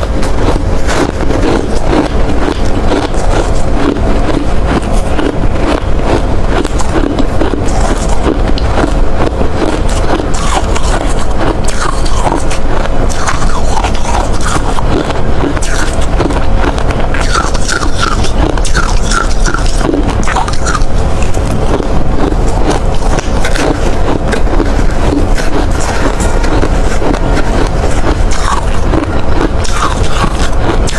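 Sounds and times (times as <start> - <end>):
person chewing ice: 0.0 - 30.9.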